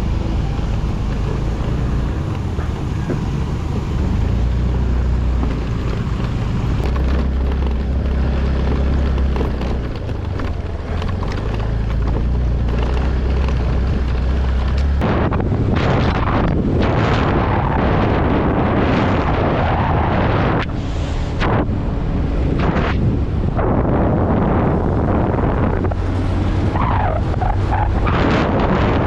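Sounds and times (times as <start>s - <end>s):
vehicle engine running: 0.0s - 19.4s
wind buffeting microphone: 0.0s - 29.0s.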